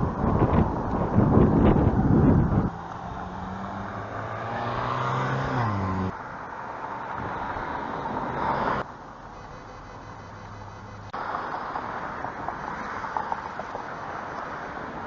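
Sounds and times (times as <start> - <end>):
traffic noise: 0.0 - 15.0
vehicle passing: 1.6 - 8.9.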